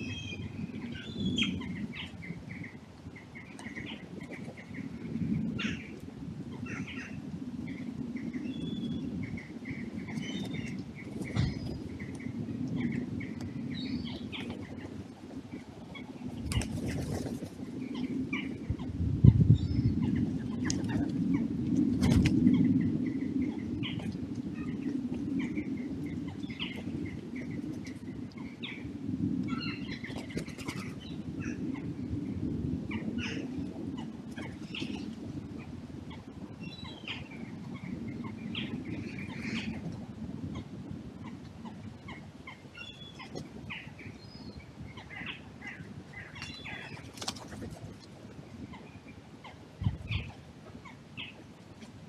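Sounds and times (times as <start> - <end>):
birds chirping: 0.0 - 2.8.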